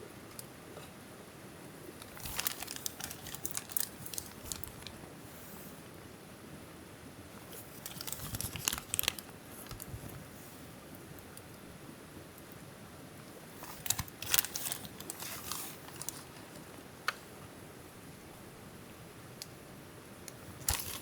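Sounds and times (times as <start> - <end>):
crinkling and crumpling: 1.9 - 5.0, 7.4 - 10.4, 13.3 - 17.3, 20.3 - 21.0.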